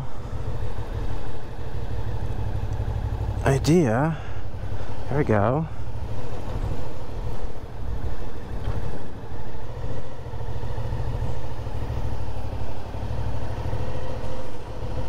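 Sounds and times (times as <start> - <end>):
motorcycle engine at low speed: 0.0 - 15.0.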